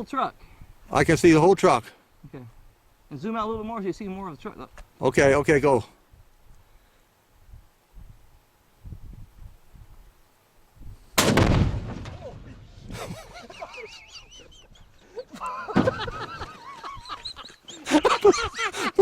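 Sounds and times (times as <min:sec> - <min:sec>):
loud explosion rumbling: 0:11.2 - 0:12.7.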